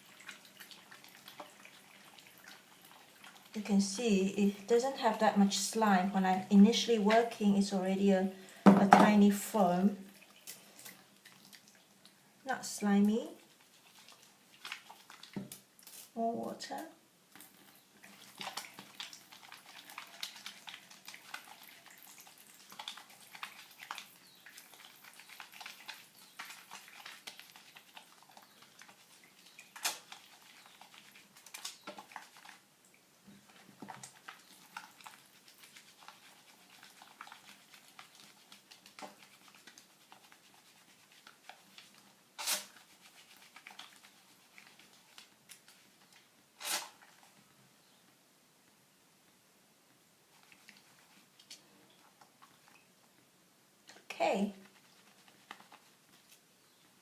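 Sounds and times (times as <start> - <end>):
wet soap lather squishing: 0.0 - 3.6, 12.8 - 32.7, 33.3 - 47.4, 50.3 - 52.8, 54.5 - 56.4.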